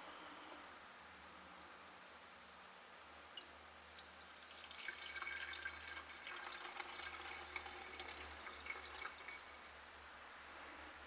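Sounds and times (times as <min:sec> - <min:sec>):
liquid trickling into container: 0:03.1 - 0:09.6.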